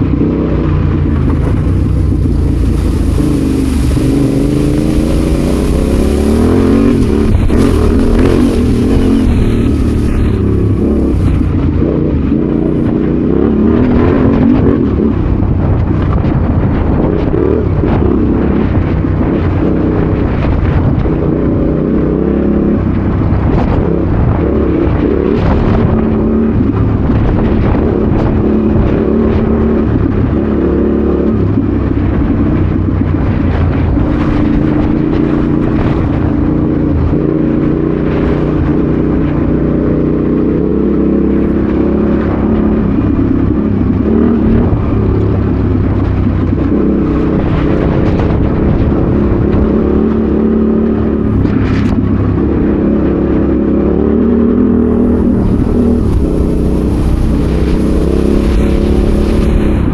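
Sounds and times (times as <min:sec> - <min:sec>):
motorcycle engine under load: 0:00.0 - 0:13.9, 0:31.4 - 0:59.9.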